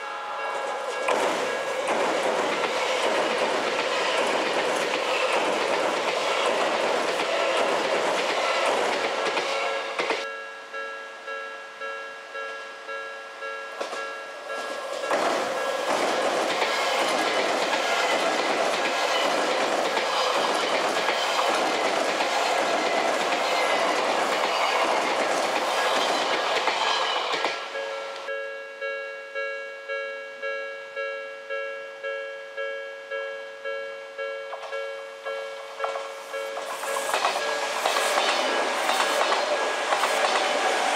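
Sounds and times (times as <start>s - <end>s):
train wheels on rails: 0.0s - 10.3s, 13.7s - 28.3s, 34.5s - 40.9s
level-crossing warning bell: 0.0s - 40.9s.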